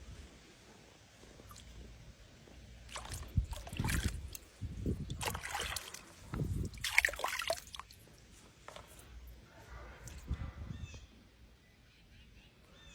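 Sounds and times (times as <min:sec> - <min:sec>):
water splashing in a tub: 0:02.8 - 0:08.0.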